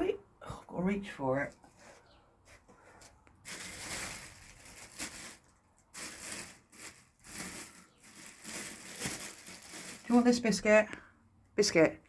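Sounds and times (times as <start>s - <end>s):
food packaging crinkling: 3.4s - 10.5s.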